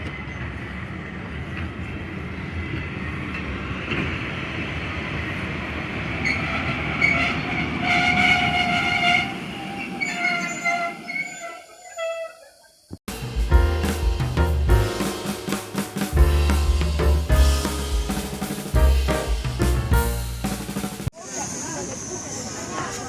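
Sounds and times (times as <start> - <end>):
steam locomotive whistle: 7.0 - 12.4
train wheels rumbling: 13.1 - 21.1.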